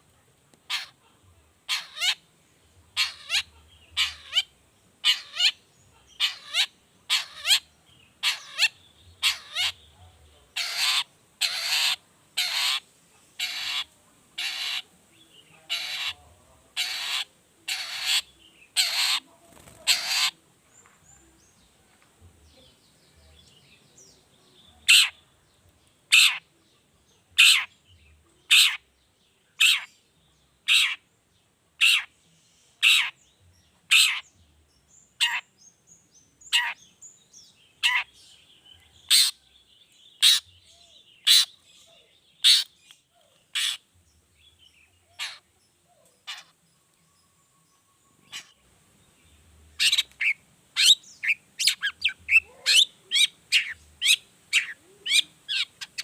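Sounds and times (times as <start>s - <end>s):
bird sharp repeated call: 0.7s - 1.0s, 1.7s - 2.2s, 3.0s - 5.6s, 6.2s - 9.8s, 10.6s - 12.8s, 13.4s - 14.8s, 15.7s - 16.2s, 16.8s - 19.2s, 19.8s - 20.4s, 24.9s - 25.2s, 27.4s - 27.7s, 29.6s - 29.9s, 30.7s - 31.0s, 32.8s - 33.2s, 33.9s - 34.3s
faint bird twittering: 31.8s - 56.0s.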